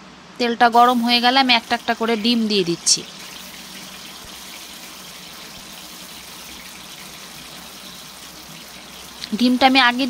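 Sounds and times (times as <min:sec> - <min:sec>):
eggs sizzling in hot oil: 0:00.7 - 0:10.0.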